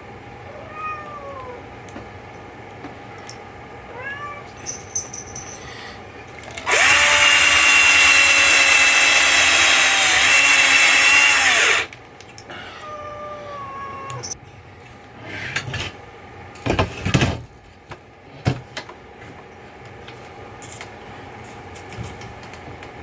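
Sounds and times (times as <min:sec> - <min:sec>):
cat meowing: 0:00.5 - 0:01.6, 0:03.9 - 0:04.5
power drill running: 0:06.4 - 0:12.0.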